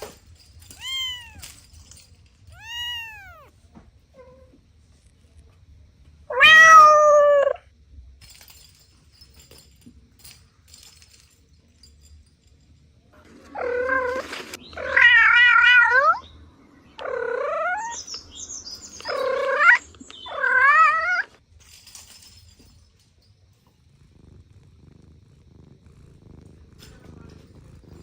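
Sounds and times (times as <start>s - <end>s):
cat meowing: 0.8s - 1.6s, 2.5s - 3.6s, 6.3s - 7.6s
cat purring: 23.4s - 28.0s.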